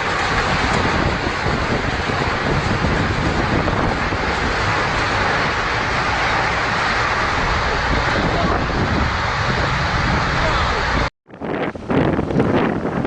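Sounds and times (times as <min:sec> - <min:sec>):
storm wind on microphone: 0:00.0 - 0:13.0.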